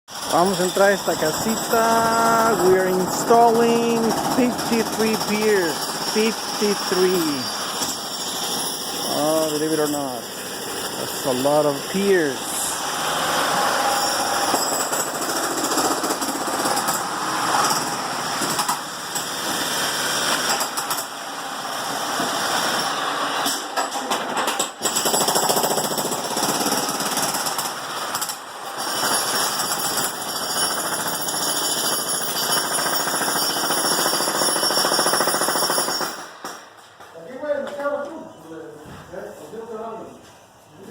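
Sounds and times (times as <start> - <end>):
jackhammer hammering: 0.1 - 36.7.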